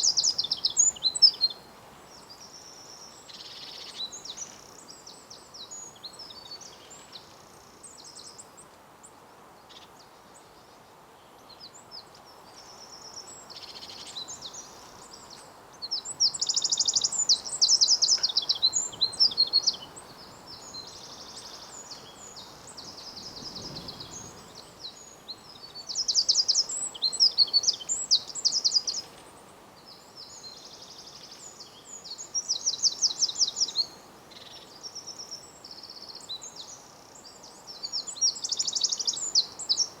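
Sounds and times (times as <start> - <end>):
rapid high trilling birdsong: 0.0 - 5.0, 15.9 - 29.2
songbirds singing: 0.0 - 40.0.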